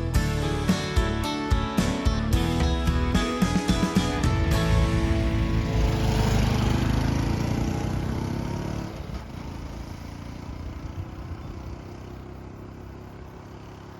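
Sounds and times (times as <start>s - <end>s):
background music: 0.0s - 8.8s
small motorcycle engine running: 3.8s - 13.9s.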